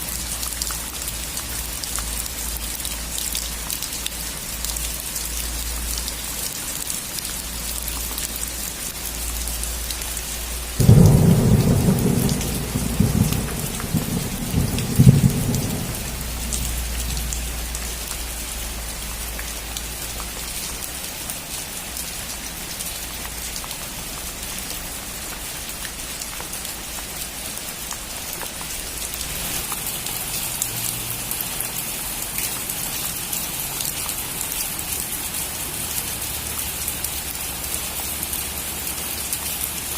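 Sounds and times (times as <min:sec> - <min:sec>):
rain falling on a roof: 0:00.0 - 0:39.9
loud thunder crack: 0:10.8 - 0:17.3
thunder rumbling: 0:10.8 - 0:17.8.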